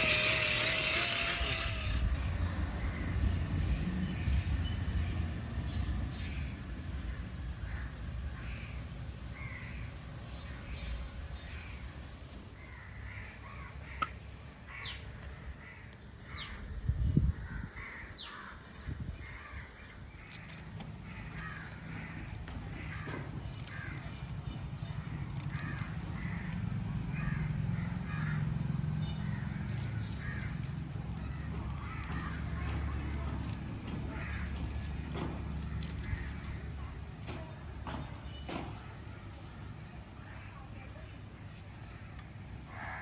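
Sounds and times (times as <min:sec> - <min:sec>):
crows cawing: 0:12.6 - 0:16.0, 0:17.5 - 0:37.0, 0:41.8 - 0:43.0.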